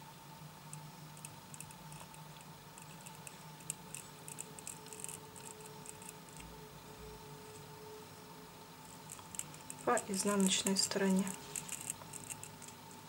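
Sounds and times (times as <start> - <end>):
low background hum: 0.0 - 13.0
small clicks and ticks: 0.7 - 6.6, 8.8 - 13.0.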